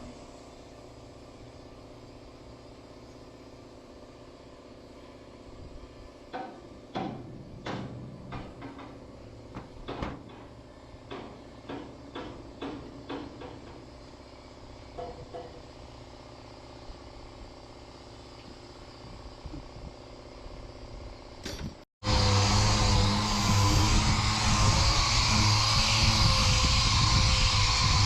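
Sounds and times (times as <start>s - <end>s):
steady low hum: 13.9s - 28.0s.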